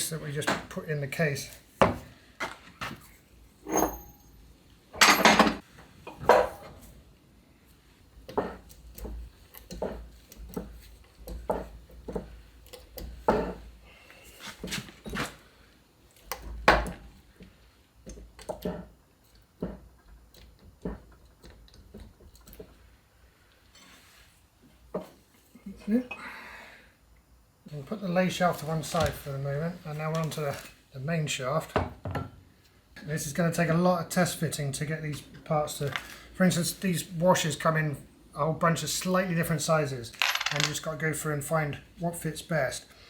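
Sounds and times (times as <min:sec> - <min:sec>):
metal clinks and knocks: 0:40.1 - 0:40.8.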